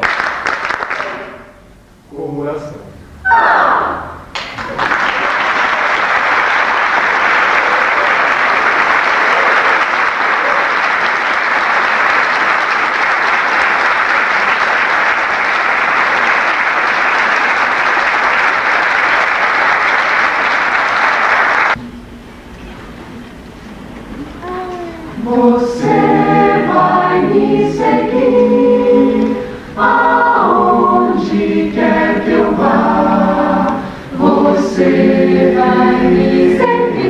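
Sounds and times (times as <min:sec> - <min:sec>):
audience applauding: 0:00.0 - 0:01.5, 0:04.4 - 0:21.8.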